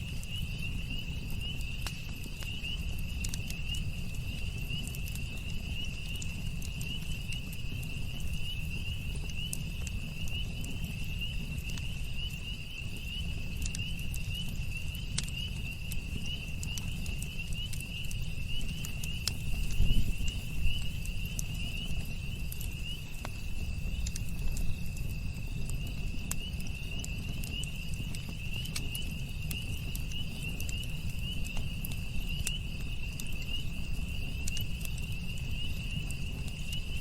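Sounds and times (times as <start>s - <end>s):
campfire crackling and popping: 0.0s - 37.0s
high insect trill: 12.2s - 37.0s.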